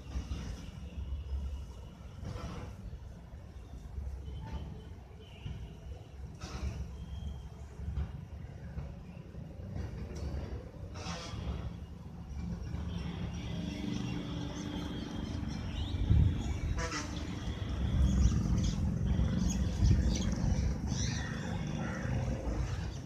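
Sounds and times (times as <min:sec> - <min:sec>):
small birds chirping: 0:12.9 - 0:23.0.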